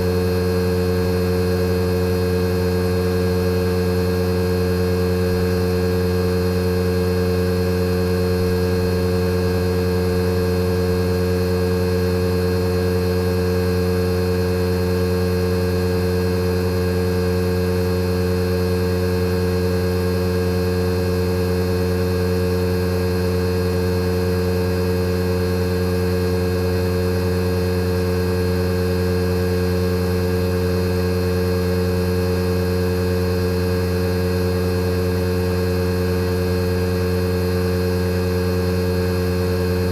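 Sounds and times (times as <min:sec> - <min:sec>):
air conditioner compressor humming: 0:05.0 - 0:06.1, 0:07.6 - 0:11.9.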